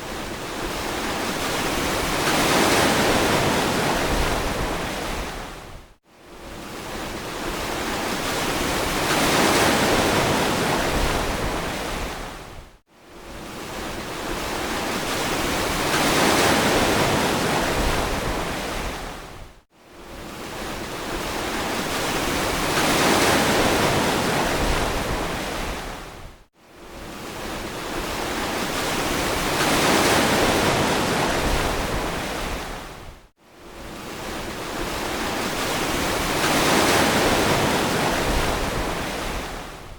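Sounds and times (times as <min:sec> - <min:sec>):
ocean waves washing ashore: 0:00.0 - 0:39.9.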